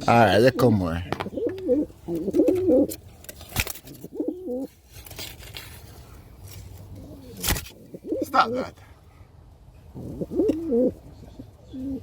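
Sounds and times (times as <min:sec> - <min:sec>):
pigeon cooing: 0:01.2 - 0:02.9, 0:04.0 - 0:04.7, 0:07.0 - 0:08.4, 0:09.9 - 0:12.0.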